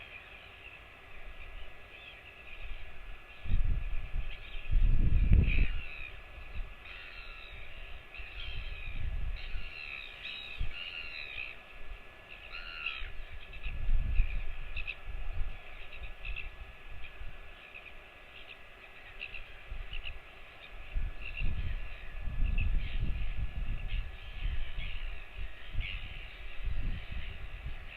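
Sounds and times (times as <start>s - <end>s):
birds calling: 0.0s - 27.9s
low rumbling wind noise: 2.5s - 27.9s
crow-like caws: 6.9s - 7.6s, 12.4s - 13.1s.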